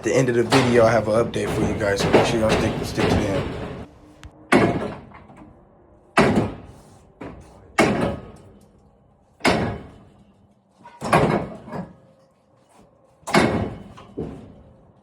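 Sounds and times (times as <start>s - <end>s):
heavy thuds: 0.0s - 5.0s.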